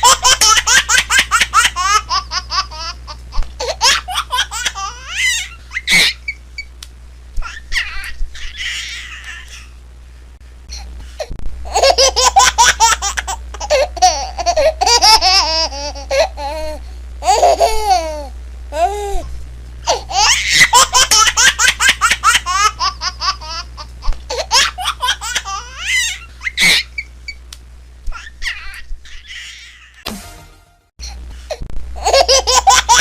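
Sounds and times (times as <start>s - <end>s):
baby giggling and squealing: 3.6s - 6.4s, 11.7s - 19.3s, 24.3s - 27.1s
low hum: 16.4s - 20.3s.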